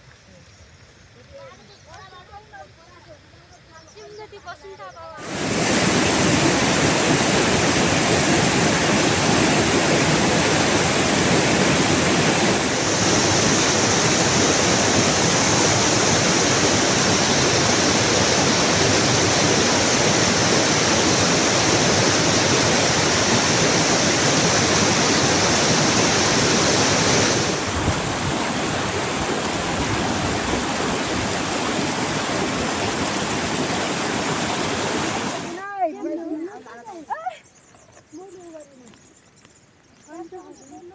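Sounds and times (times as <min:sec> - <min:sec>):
rushing water: 0:05.2 - 0:35.8.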